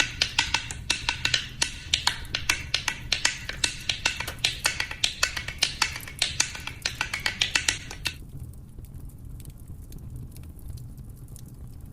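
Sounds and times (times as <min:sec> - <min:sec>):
rapid sharp clicks: 0:00.0 - 0:08.2.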